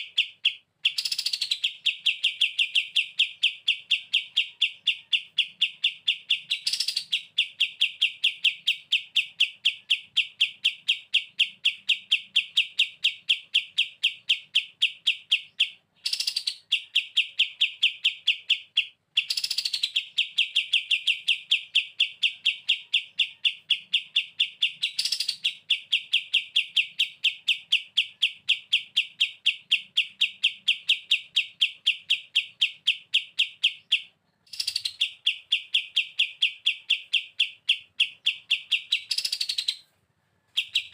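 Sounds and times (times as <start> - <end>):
bird singing rattling song: 0.0 - 40.9.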